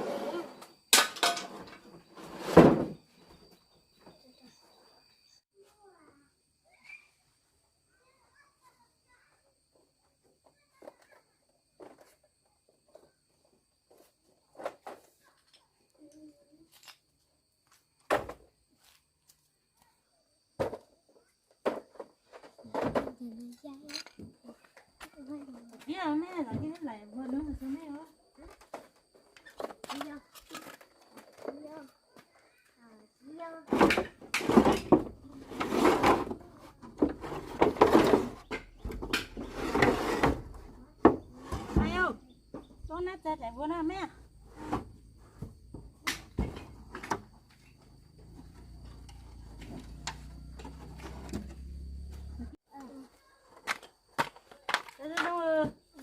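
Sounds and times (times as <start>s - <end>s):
objects scraping: 0.0s - 4.2s, 33.7s - 42.7s, 44.3s - 52.6s
knocks and thumps: 33.7s - 43.0s, 44.4s - 47.6s.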